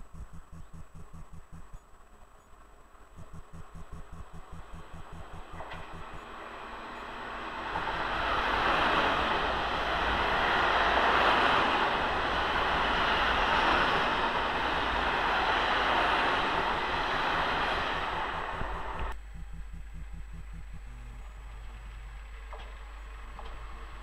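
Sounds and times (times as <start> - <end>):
passenger train passing: 2.0 - 19.2.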